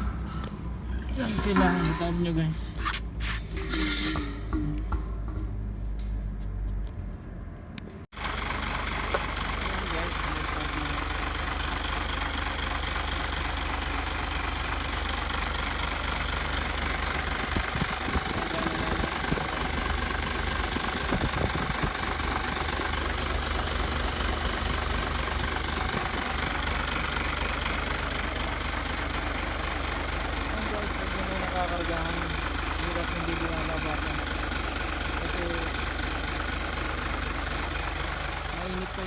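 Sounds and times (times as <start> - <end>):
handling clanks: 0.0 - 6.2
truck engine idling: 0.0 - 39.0.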